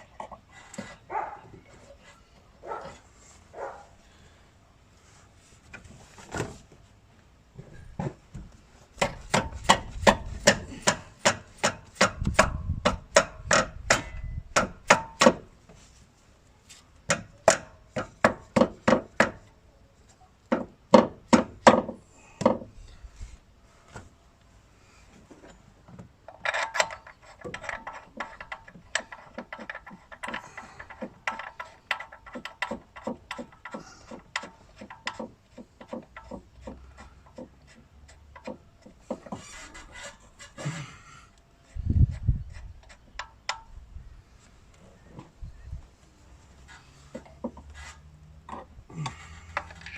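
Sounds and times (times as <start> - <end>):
tools clattering and scraping metal: 25.3 - 40.9, 46.6 - 49.9.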